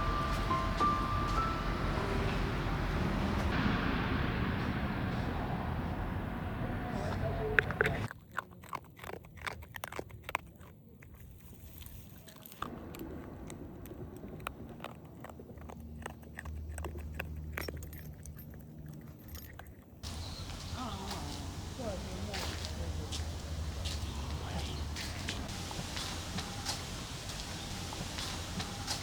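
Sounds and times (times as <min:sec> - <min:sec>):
car road noise: 0:00.0 - 0:08.1, 0:20.0 - 0:29.0
faint low hum: 0:20.0 - 0:29.0.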